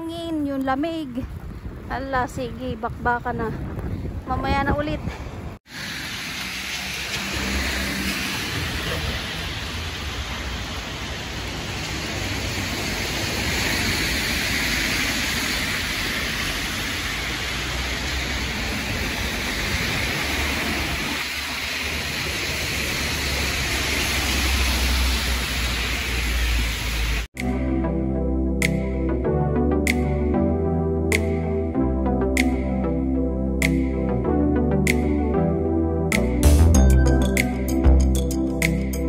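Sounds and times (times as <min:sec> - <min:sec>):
wind blowing across microphone: 0:00.0 - 0:05.6.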